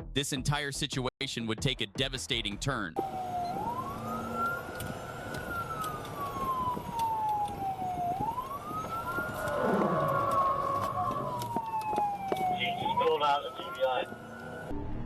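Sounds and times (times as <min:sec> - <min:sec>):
police siren wailing: 0:03.0 - 0:15.0
vehicle rushing past: 0:09.0 - 0:11.8.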